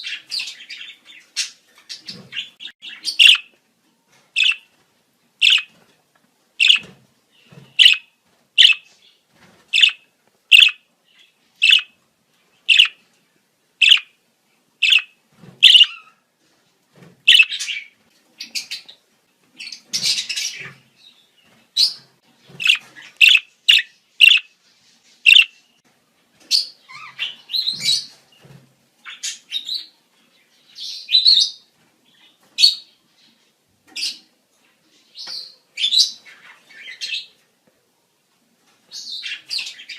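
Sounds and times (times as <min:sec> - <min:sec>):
budgerigars chirping and warbling: 0:00.0 - 0:03.5, 0:04.4 - 0:04.7, 0:05.4 - 0:05.7, 0:06.6 - 0:08.9, 0:09.8 - 0:12.0, 0:12.6 - 0:13.0, 0:13.8 - 0:14.1, 0:14.8 - 0:16.2, 0:17.3 - 0:19.0, 0:19.6 - 0:20.9, 0:21.8 - 0:24.6, 0:25.3 - 0:25.6, 0:26.5 - 0:28.2.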